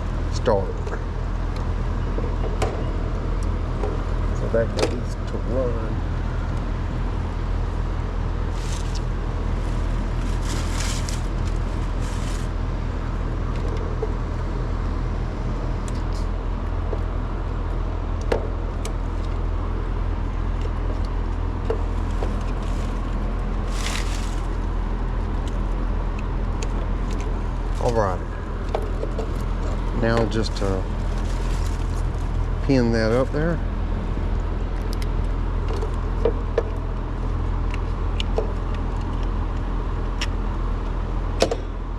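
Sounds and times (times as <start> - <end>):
low machine hum: 0.0 - 41.9
wires rustling and clicking: 8.4 - 12.6, 20.5 - 28.0.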